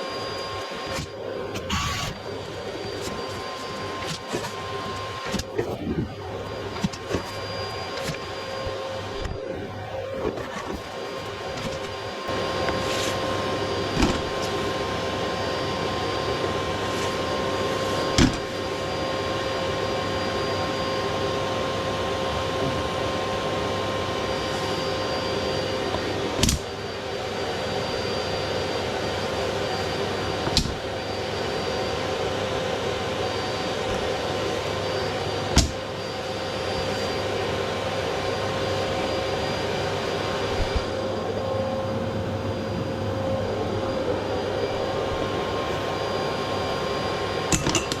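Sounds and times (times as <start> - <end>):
vacuum whining: 0.0 - 48.0.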